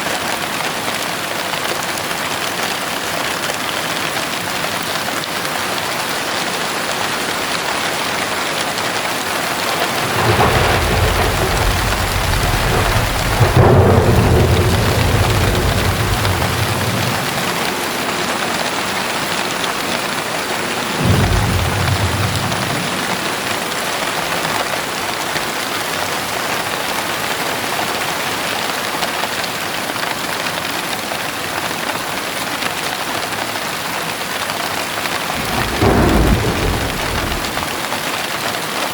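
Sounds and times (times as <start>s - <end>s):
steady rain falling: 0.0s - 38.9s
thunder rumbling: 9.5s - 24.0s, 35.2s - 37.9s.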